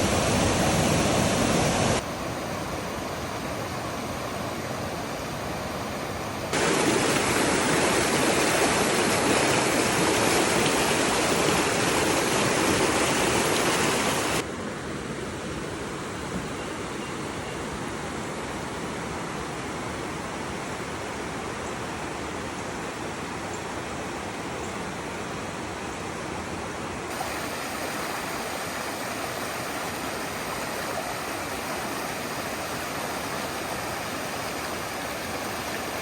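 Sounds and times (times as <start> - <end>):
flowing water rushing: 0.0 - 14.5, 27.1 - 36.0.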